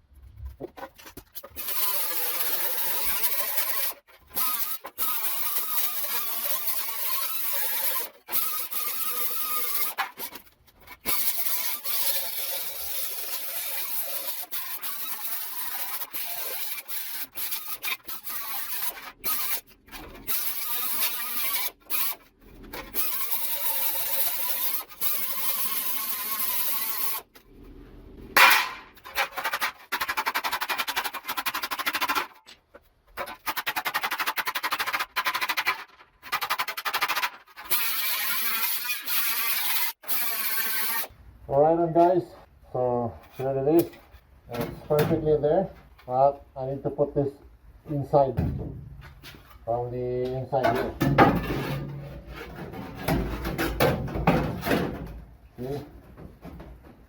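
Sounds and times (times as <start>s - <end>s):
power tool cutting sheet metal: 1.5s - 10.4s, 11.0s - 22.2s, 22.8s - 27.3s, 33.4s - 41.1s.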